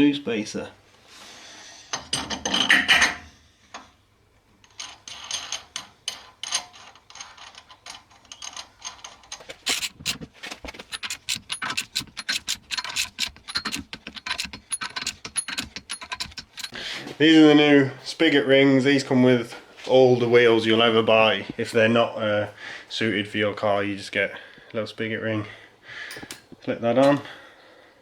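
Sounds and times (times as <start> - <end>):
steel parts clinking on wheel hub: 4.6 - 16.8.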